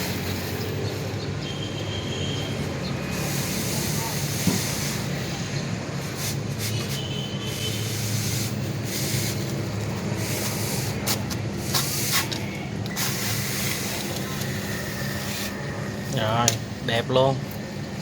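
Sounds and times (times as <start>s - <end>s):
trowel scraping wet mortar: 6.3s - 15.6s.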